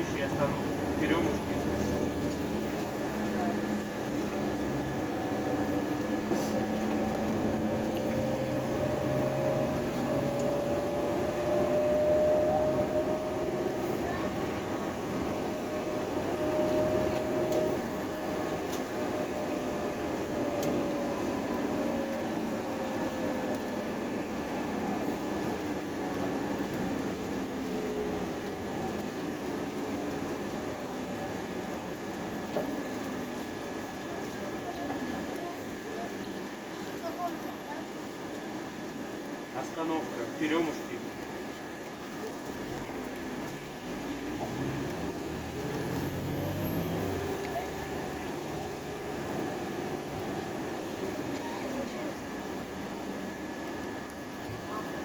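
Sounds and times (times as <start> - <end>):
bus engine and road rumble: 0.0 - 55.0
rising and falling whine: 4.6 - 14.2.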